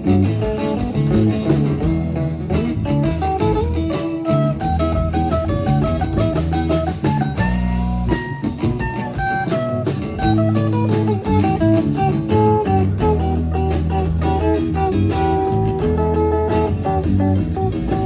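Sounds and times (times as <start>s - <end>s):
bass line: 0.0s - 18.0s
drums: 0.0s - 18.0s
electric guitar picking single notes: 0.0s - 18.0s.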